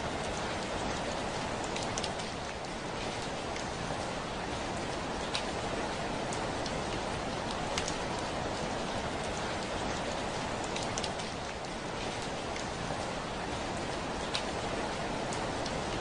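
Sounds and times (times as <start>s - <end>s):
rain on window pane: 0.0s - 16.0s
raindrop taps: 7.7s - 8.0s.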